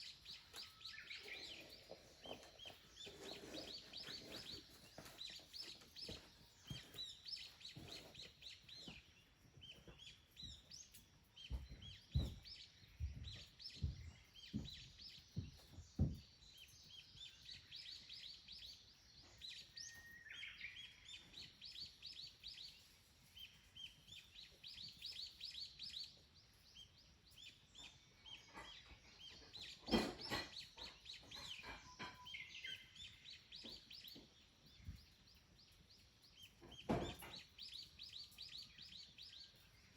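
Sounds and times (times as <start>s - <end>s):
small birds chirping: 0.0s - 39.9s
dull knocks: 11.5s - 16.3s.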